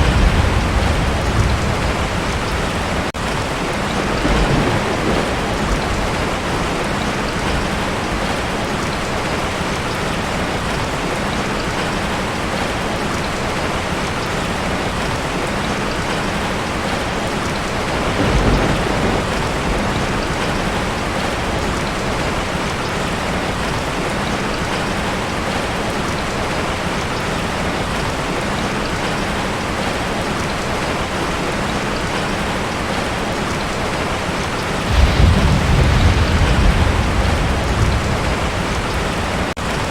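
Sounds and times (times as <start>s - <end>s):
low rumble of thunder: 0.0s - 9.2s, 16.0s - 23.7s, 34.8s - 39.9s
heavy rain on a tin roof: 0.0s - 39.9s.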